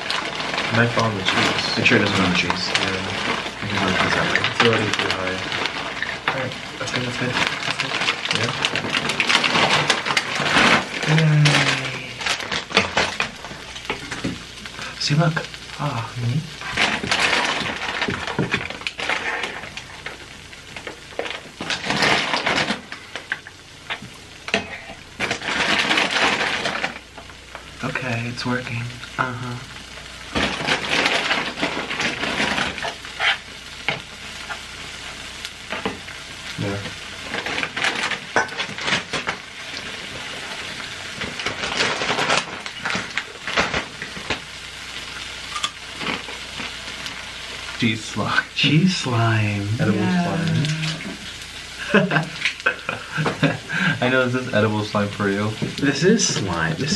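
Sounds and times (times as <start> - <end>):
food sizzling in a frying pan: 0.0 - 56.9
utensil scraping a pan: 30.4 - 34.7.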